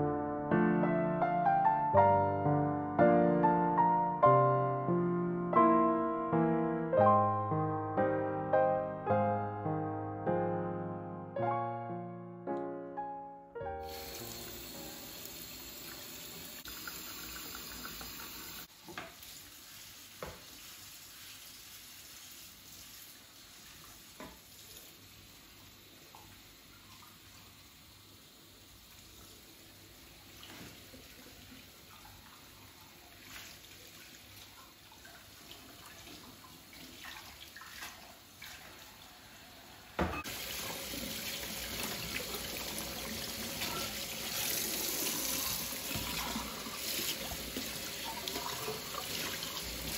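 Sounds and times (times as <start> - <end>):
tap water running into sink: 13.8 - 38.9, 40.0 - 49.9.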